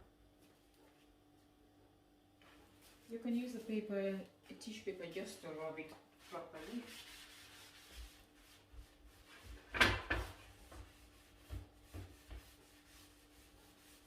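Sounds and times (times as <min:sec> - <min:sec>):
paper rubbing on grill pan: 0:05.3 - 0:14.0.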